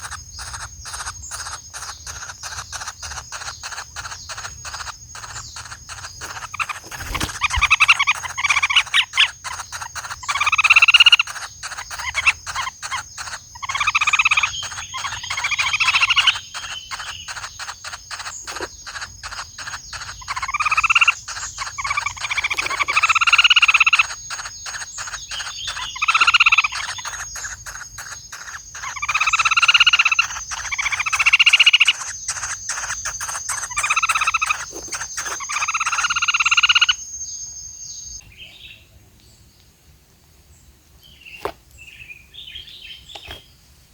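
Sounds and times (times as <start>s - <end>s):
nestlings begging calls: 0.0s - 38.8s, 41.1s - 43.6s.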